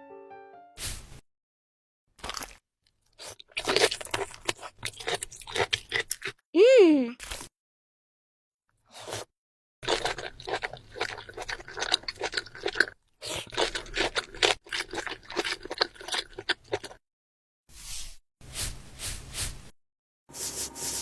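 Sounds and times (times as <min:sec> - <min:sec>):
person chewing crisp food: 0:02.1 - 0:06.4, 0:07.2 - 0:07.5, 0:08.8 - 0:17.0.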